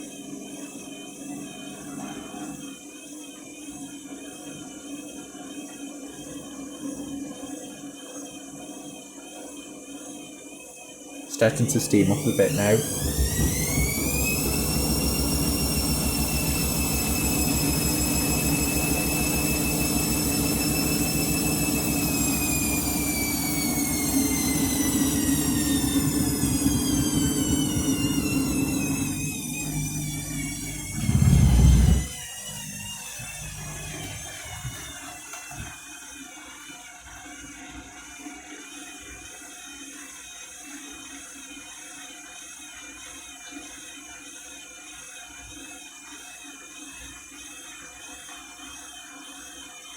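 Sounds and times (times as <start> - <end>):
washing machine spinning: 0.0 - 49.9
loud low rumble: 30.7 - 32.1.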